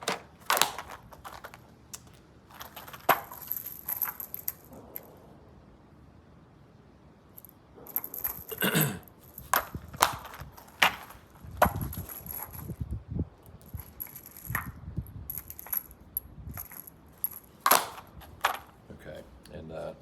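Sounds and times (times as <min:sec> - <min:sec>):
metal cartridges clinking: 0:00.0 - 0:05.2, 0:07.4 - 0:12.8, 0:13.5 - 0:19.5.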